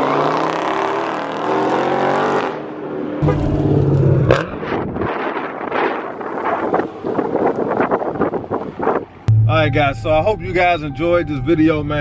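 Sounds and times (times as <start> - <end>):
car engines revving: 0.0 - 5.0.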